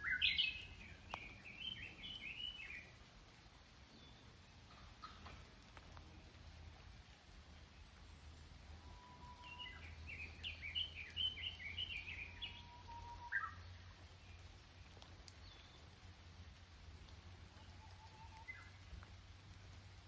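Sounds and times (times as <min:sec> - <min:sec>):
bird call: 0:00.0 - 0:02.8, 0:08.9 - 0:13.6
songbird singing: 0:00.0 - 0:20.0.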